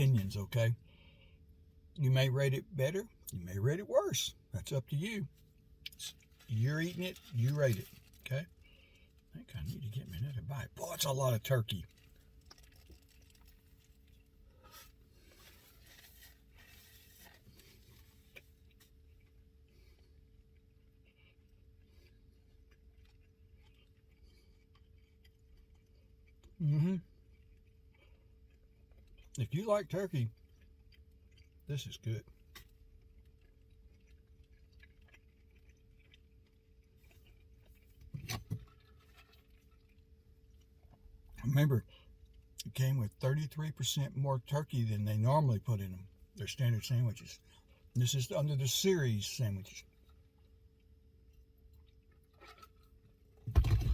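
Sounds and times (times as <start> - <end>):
low steady hum: 0.0 - 53.9
person chewing: 11.8 - 29.4, 30.3 - 42.7, 49.8 - 53.9
food wrapper rustling: 11.9 - 19.3.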